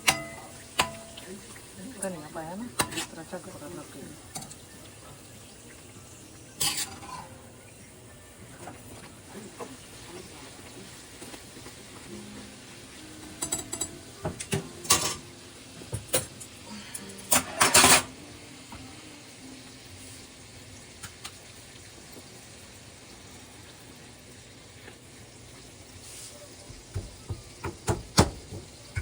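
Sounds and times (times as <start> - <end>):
utensils and dishes clattering: 0.0 - 5.2, 6.5 - 7.6, 13.1 - 18.3.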